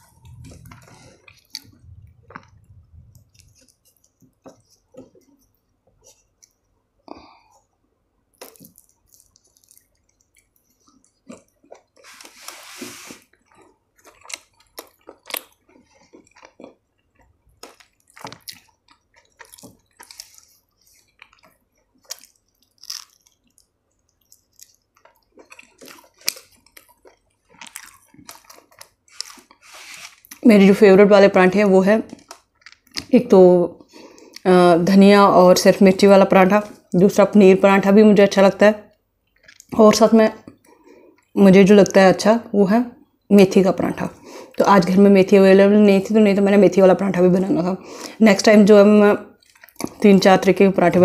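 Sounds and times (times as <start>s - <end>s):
chewing with wet clicks: 0.0s - 6.7s, 8.3s - 12.0s, 13.3s - 29.6s, 32.0s - 33.2s, 38.9s - 39.8s, 49.3s - 50.0s.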